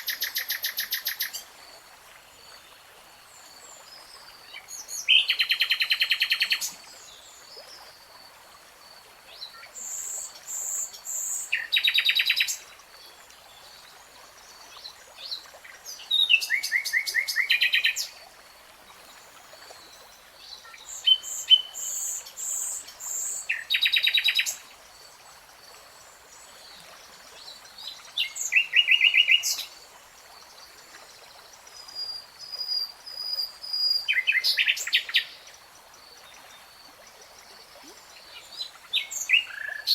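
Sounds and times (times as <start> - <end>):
songbird singing: 18.9 - 24.6.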